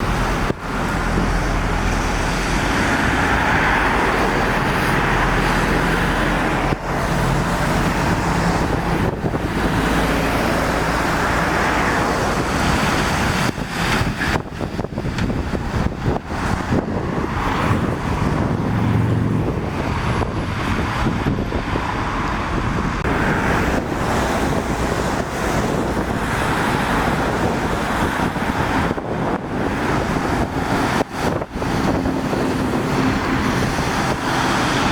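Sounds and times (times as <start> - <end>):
vehicles passing with engine rumble: 0.0 - 34.9.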